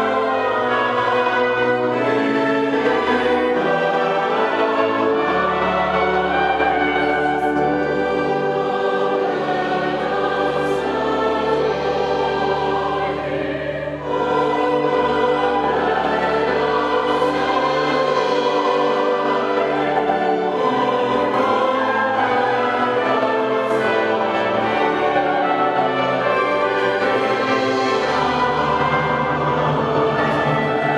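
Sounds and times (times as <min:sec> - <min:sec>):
choir singing: 0:00.0 - 0:30.9
orchestral accompaniment: 0:00.0 - 0:30.9.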